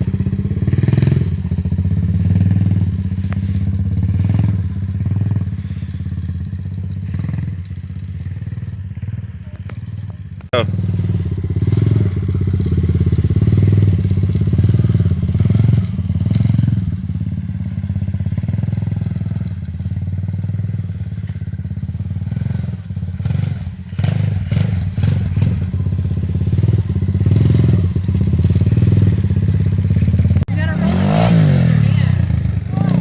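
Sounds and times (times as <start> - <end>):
dirt bike engine running: 0.0 - 33.0.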